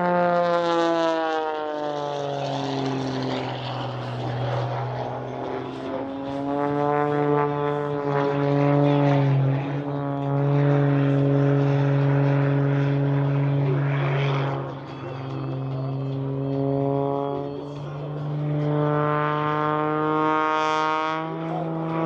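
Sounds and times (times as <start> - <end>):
propeller airplane droning: 0.0 - 22.0.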